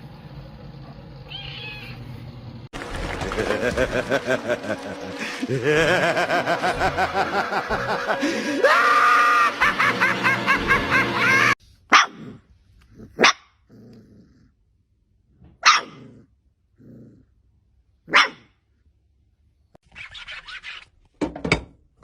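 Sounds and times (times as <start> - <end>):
dog barking: 11.9 - 12.4, 13.1 - 13.6, 15.6 - 16.2, 18.1 - 18.6
dog growling: 12.1 - 14.6, 15.9 - 17.4.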